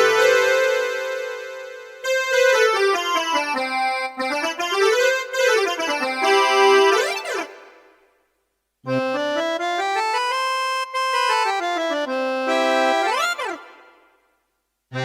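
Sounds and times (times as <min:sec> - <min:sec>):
keyboard chord: 0:00.0 - 0:07.7.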